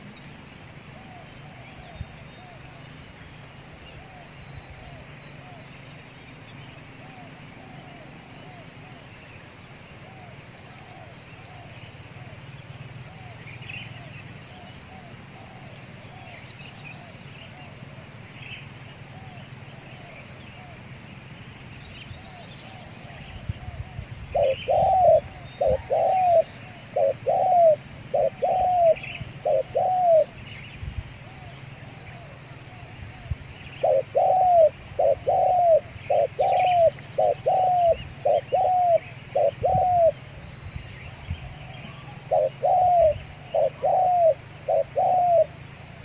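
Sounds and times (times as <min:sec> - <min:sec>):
steady high hiss: 0:00.0 - 0:46.0
small birds chirping: 0:21.6 - 0:46.0
dove cooing: 0:22.2 - 0:30.4, 0:31.4 - 0:40.2, 0:41.4 - 0:45.6.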